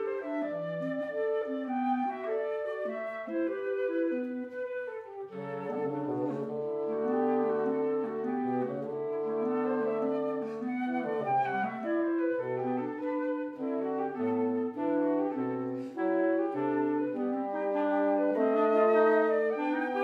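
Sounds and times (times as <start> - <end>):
woodwind quintet chamber music: 0.0 - 20.0.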